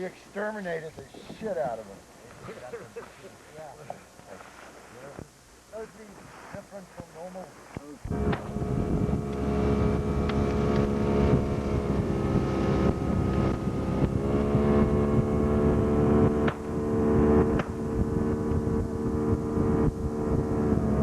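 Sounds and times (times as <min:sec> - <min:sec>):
wind on microphone: 0:08.0 - 0:21.0
motorboat engine running: 0:08.1 - 0:21.0.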